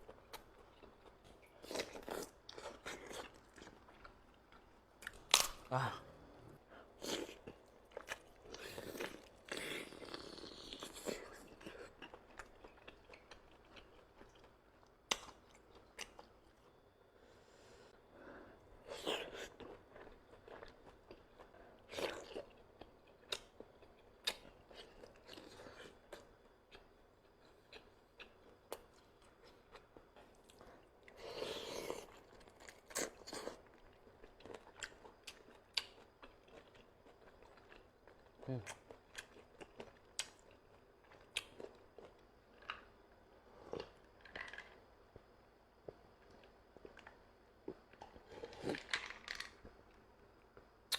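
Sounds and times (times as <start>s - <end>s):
person chewing food: 0.0s - 5.6s, 6.8s - 16.4s, 18.5s - 44.1s.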